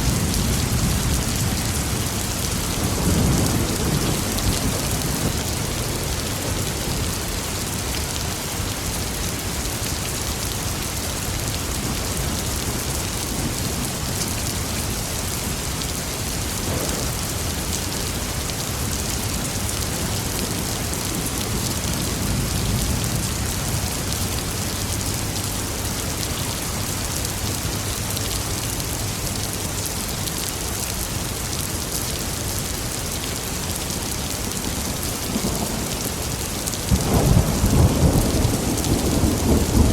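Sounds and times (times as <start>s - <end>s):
thunder rumbling: 0.0s - 7.1s, 34.8s - 39.9s
steady rain falling: 0.0s - 39.9s.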